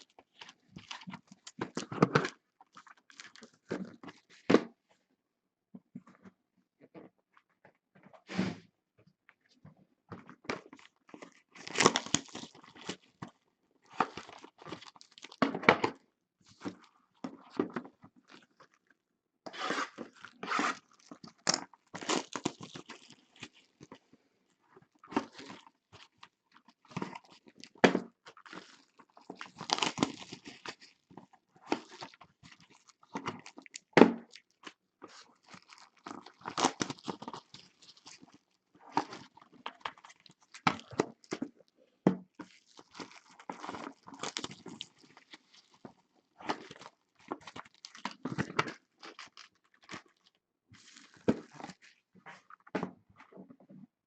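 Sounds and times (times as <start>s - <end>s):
wrapping tearing and crinkling: 0.0s - 4.5s, 10.6s - 15.4s, 19.6s - 24.1s, 24.8s - 41.6s, 42.3s - 52.6s.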